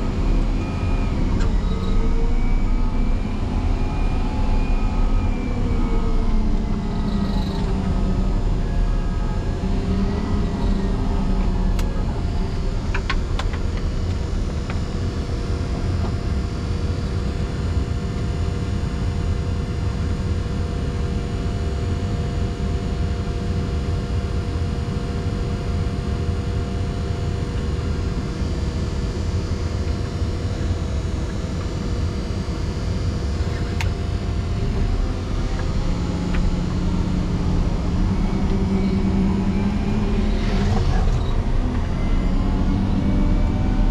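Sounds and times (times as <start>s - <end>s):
diesel engine running: 0.0s - 17.8s, 26.8s - 43.9s.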